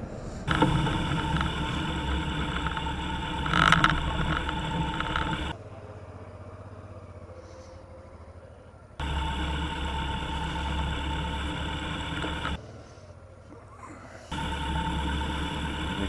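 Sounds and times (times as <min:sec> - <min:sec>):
low hum: 0:00.0 - 0:05.6, 0:09.0 - 0:12.6, 0:14.3 - 0:16.0
motorcycle engine running: 0:00.4 - 0:07.4, 0:08.0 - 0:12.8, 0:14.3 - 0:16.0.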